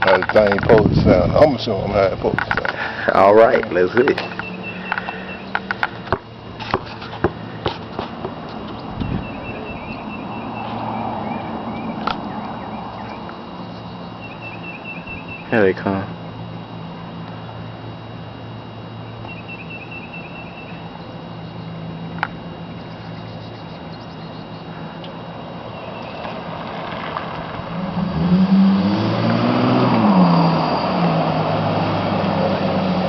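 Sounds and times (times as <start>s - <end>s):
car exhaust drone: 0.0s - 33.0s
car engine revving: 25.5s - 33.0s.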